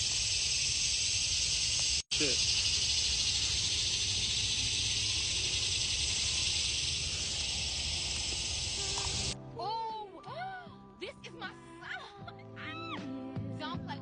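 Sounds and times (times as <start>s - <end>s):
high-pitched insect chorus: 0.0s - 9.4s.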